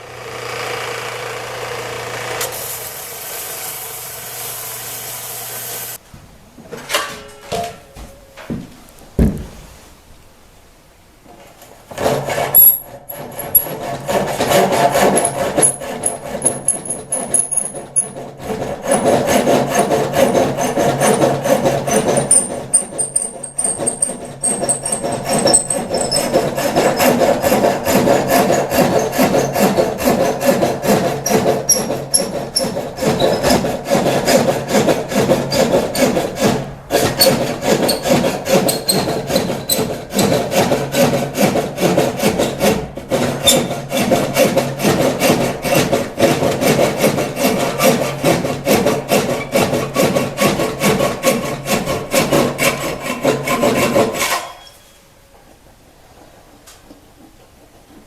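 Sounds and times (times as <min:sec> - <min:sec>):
hand tool scraping wood: 0:11.9 - 0:55.0.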